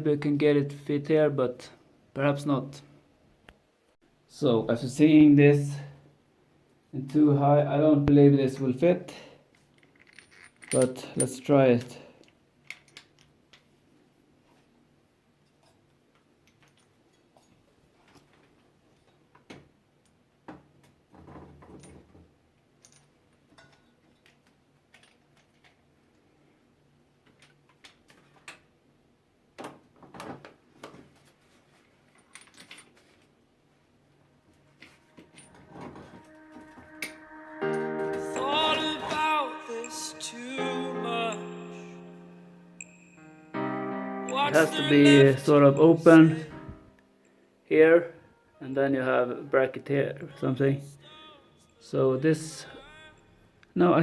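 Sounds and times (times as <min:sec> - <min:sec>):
faint metallic clinks and knocks: 0:09.5 - 0:11.4, 0:15.4 - 0:19.4, 0:20.8 - 0:25.9, 0:31.5 - 0:33.3
handling noise: 0:34.5 - 0:38.4.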